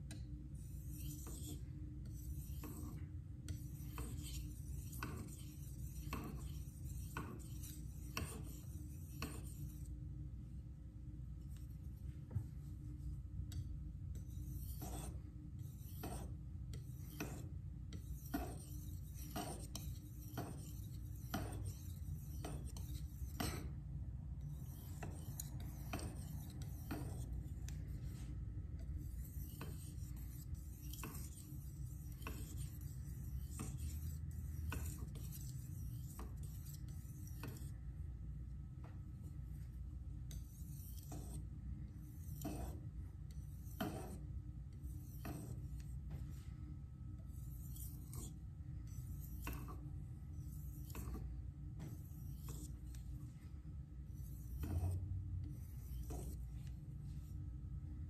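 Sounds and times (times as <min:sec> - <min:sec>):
knife scraping on whetstone: 0:00.6 - 0:09.9, 0:13.5 - 0:23.8, 0:24.4 - 0:37.8, 0:40.3 - 0:41.4, 0:42.0 - 0:44.2, 0:44.9 - 0:46.0, 0:47.3 - 0:53.0, 0:54.2 - 0:56.5.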